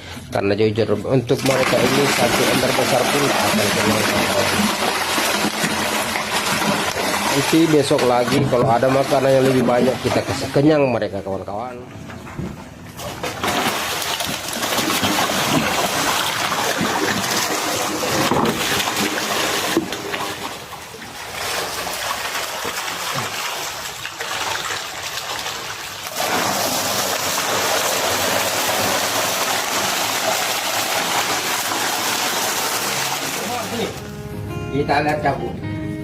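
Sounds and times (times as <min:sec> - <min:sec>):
water splashing and sloshing: 0:01.3 - 0:34.1.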